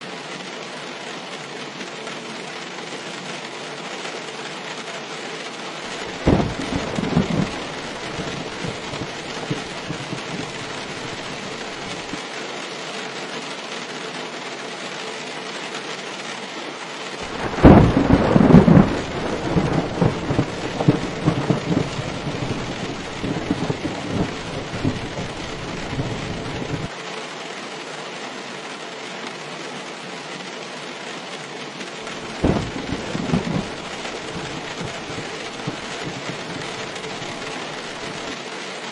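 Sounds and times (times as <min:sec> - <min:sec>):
steady rain: 0:00.0 - 0:38.9
thunder rumbling: 0:05.9 - 0:12.2, 0:17.2 - 0:26.9, 0:32.1 - 0:38.4.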